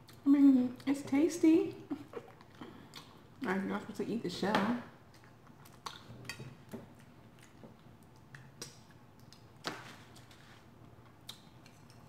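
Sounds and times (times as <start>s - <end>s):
soft wet chewing clicks: 2.2s - 3.6s, 5.1s - 12.0s.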